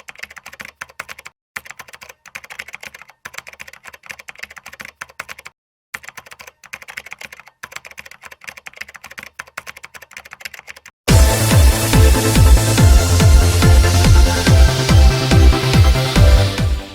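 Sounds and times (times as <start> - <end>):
keyboard typing clicks: 0.0 - 10.9
electronic dance music: 11.1 - 16.9.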